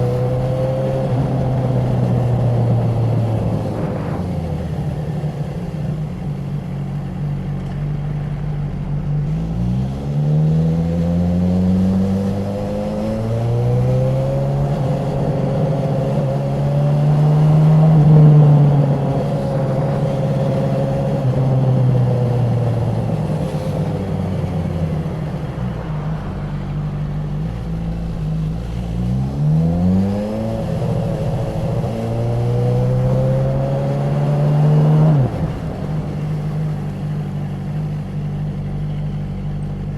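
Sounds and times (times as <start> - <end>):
motorcycle engine accelerating through gears: 0.0 - 39.9.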